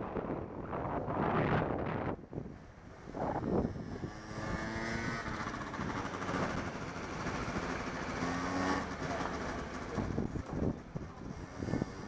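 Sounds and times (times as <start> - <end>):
wind on microphone: 0.0 - 6.8, 10.0 - 12.0
vehicle engine running: 3.8 - 12.0.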